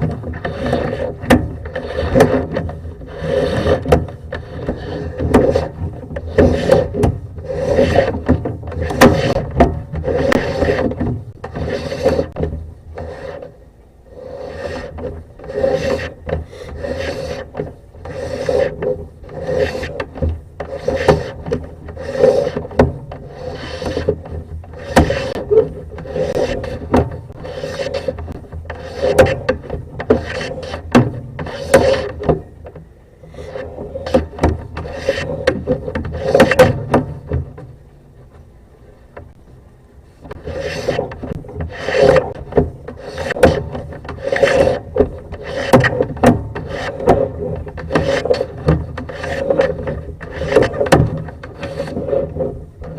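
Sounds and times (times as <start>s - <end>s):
cable scraping through pipe: 0.0s - 37.8s, 40.1s - 52.9s.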